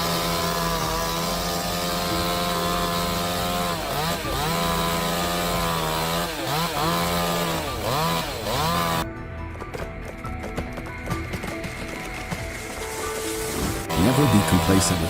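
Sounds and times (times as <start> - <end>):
chainsaw engine at high revs: 0.0 - 9.0, 13.6 - 15.0.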